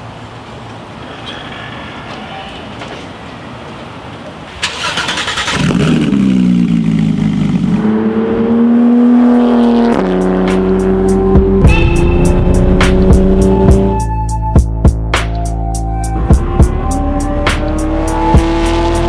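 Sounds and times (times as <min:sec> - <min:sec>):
car engine starting and idling: 0:04.4 - 0:07.8.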